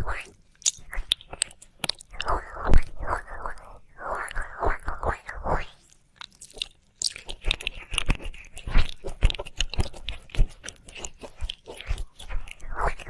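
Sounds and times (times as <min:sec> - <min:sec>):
mouth licking: 0:00.0 - 0:13.0
wet mouth clicks and smacks: 0:00.0 - 0:13.0.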